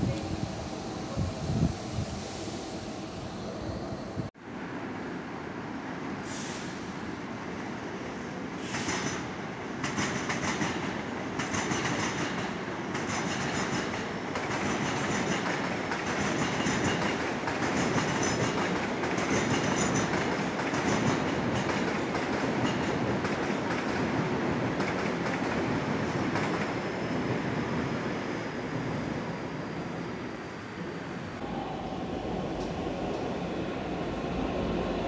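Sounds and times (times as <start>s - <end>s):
train wheels rumbling on rail: 6.3s - 30.0s
train wheels clattering: 8.7s - 26.7s.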